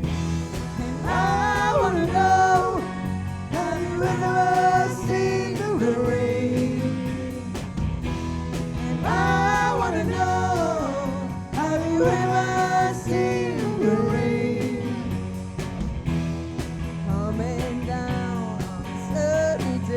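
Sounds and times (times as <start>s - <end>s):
rock band playing: 0.0s - 19.9s
person singing: 0.5s - 7.7s, 8.8s - 15.2s.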